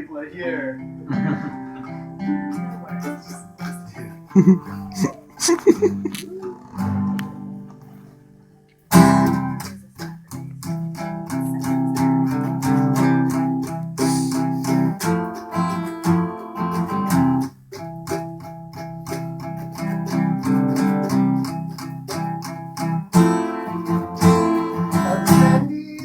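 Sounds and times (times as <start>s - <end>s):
guitar chord ringing: 0.7s - 4.4s, 15.0s - 25.7s
strummed guitar chords: 0.7s - 8.3s, 8.9s - 26.0s.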